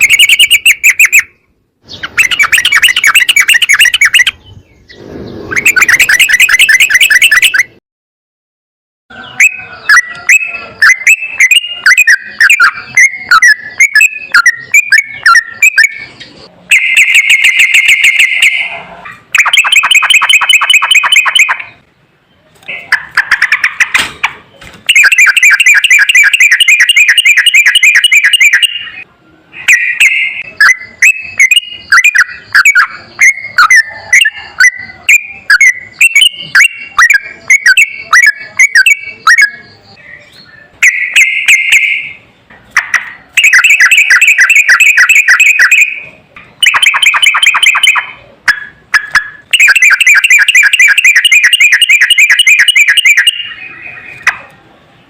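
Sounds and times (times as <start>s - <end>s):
bird quick chirps: 0.0s - 7.8s.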